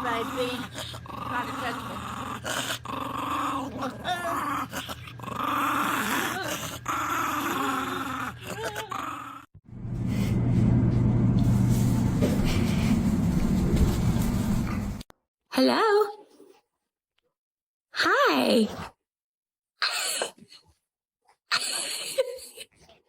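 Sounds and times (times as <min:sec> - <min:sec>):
dog growling: 0:00.0 - 0:09.6, 0:19.8 - 0:20.6
steady low hum: 0:09.7 - 0:15.1.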